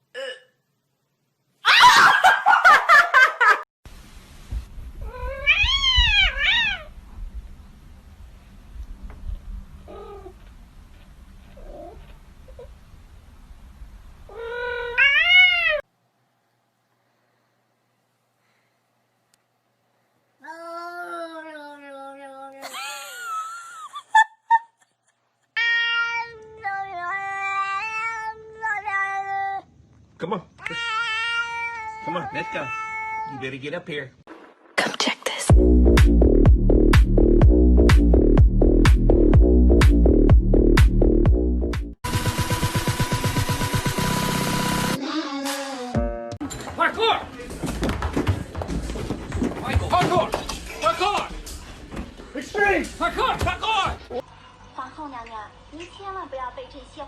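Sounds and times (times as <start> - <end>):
cat meowing: 5.0 - 7.0, 14.3 - 15.8, 30.6 - 33.4.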